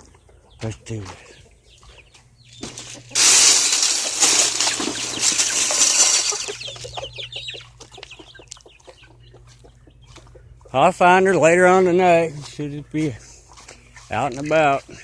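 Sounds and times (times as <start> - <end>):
chickens clucking: 0.0 - 15.0
loud rustling: 2.6 - 6.6.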